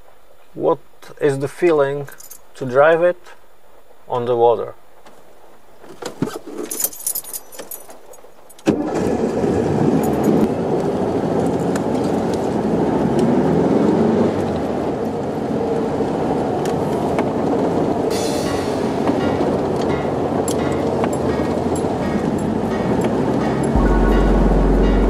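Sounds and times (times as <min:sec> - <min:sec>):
keys jingling and clicking: 0:02.1 - 0:02.5, 0:06.3 - 0:08.6
car engine starting and running: 0:08.6 - 0:11.2, 0:23.8 - 0:25.0.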